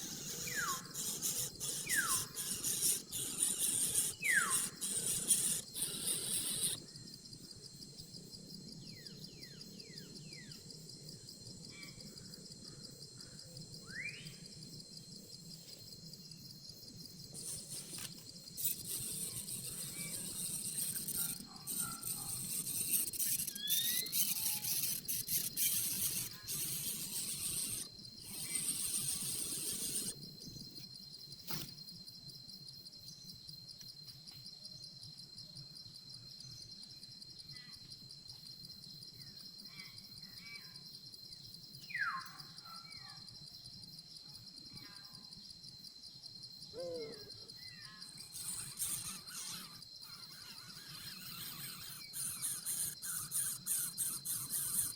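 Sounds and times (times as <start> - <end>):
high-pitched insect buzz: 0.0 - 6.9, 15.7 - 31.8, 46.8 - 54.9.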